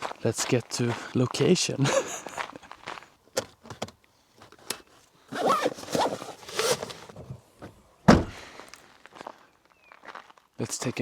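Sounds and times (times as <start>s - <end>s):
zipper rasping: 5.3s - 7.2s
loud thump: 8.1s - 8.4s.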